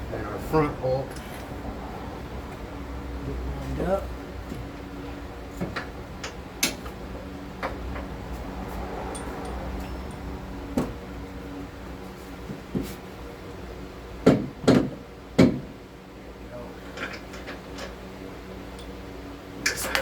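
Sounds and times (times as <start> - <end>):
steady low hum: 0.0 - 20.0
hand tools clicking and knocking: 8.8 - 10.9.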